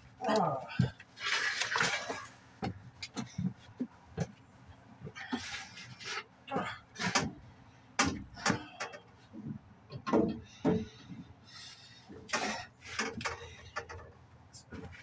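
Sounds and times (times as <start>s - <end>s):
irregular knocks and clunks: 0.8s - 4.4s, 6.9s - 11.4s, 12.0s - 15.0s.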